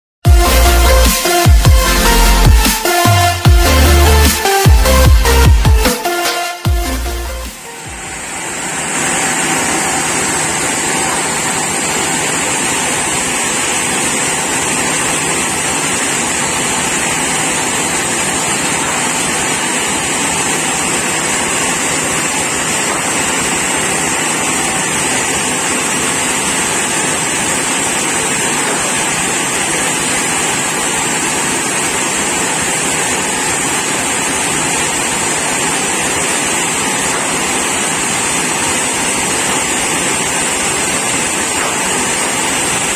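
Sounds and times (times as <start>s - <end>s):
sawmill machinery running: 0.3s - 42.9s.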